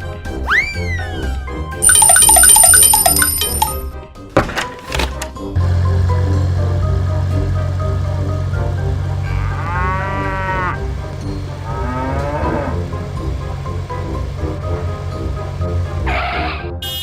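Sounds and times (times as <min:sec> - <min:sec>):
background tune: 0:01.8 - 0:03.9, 0:06.3 - 0:16.2
cartoon cow mooing: 0:09.2 - 0:11.0, 0:11.6 - 0:13.0, 0:16.0 - 0:16.6.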